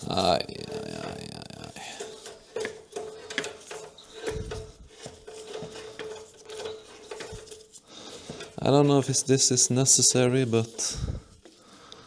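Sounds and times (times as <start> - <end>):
metal tools clinking on metal: 0.5 - 9.2.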